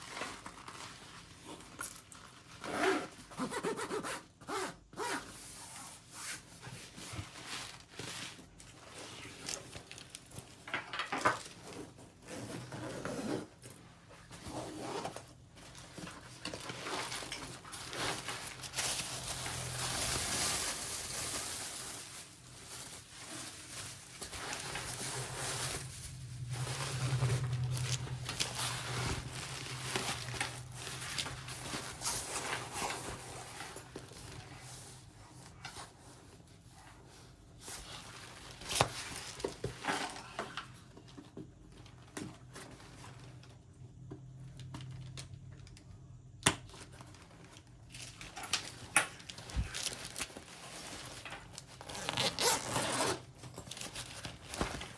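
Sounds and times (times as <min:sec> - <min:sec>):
fabric and packaging rustling: 0:00.0 - 0:45.7, 0:46.6 - 0:54.9
low hum: 0:25.4 - 0:31.4.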